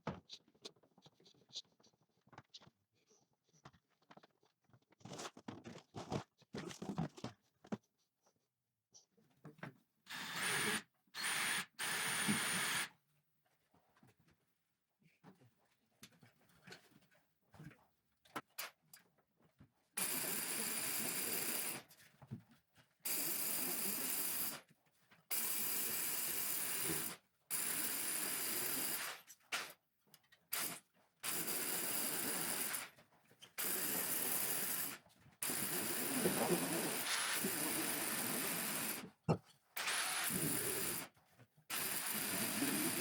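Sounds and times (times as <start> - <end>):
motor-driven tool hissing: 10.1 - 12.9, 39.8 - 41.1, 41.7 - 43.0.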